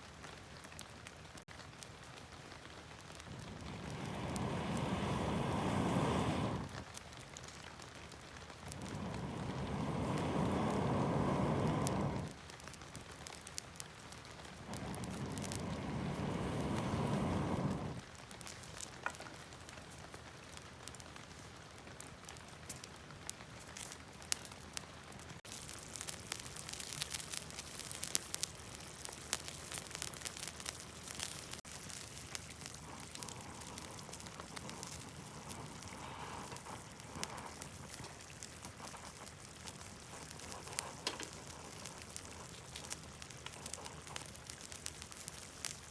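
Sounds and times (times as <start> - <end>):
campfire crackling and popping: 0.0 - 45.9
food sizzling: 3.1 - 6.8, 8.6 - 12.4, 14.3 - 18.0.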